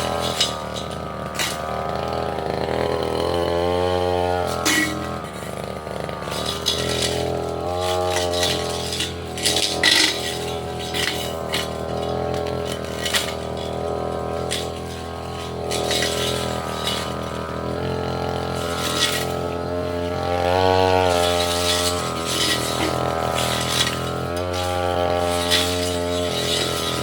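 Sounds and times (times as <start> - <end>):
blade clicking on stems: 0.0 - 2.1, 6.2 - 17.8, 18.5 - 19.6, 21.0 - 27.0
brush cutter engine running: 0.0 - 27.0.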